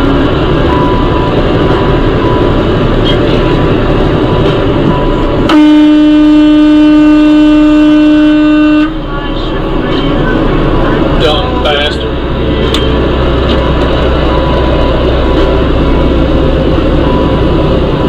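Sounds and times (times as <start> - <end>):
vehicle road and engine noise: 0.0 - 18.0
vehicle horn blast: 5.5 - 9.0.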